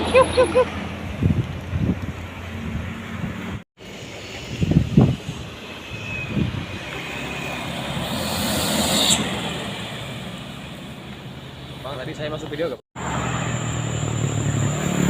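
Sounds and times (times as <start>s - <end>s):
vehicle engines running: 0.0s - 15.0s
vehicle passing: 6.5s - 11.9s.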